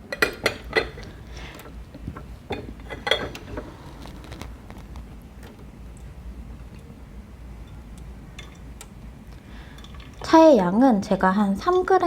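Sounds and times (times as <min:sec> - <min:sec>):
ceramic clinks and knocks: 0:00.1 - 0:03.9
ringing ceramic clink: 0:00.1 - 0:03.9.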